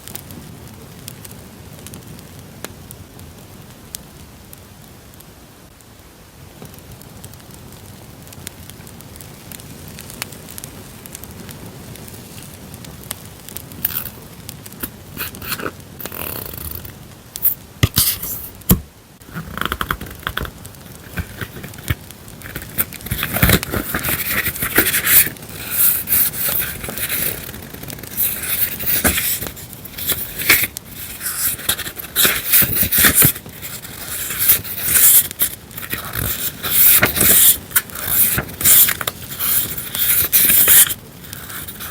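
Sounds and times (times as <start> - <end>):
campfire crackle: 0.0 - 36.7, 37.4 - 41.9
paper rustling and scraping: 13.8 - 14.2, 14.8 - 41.9.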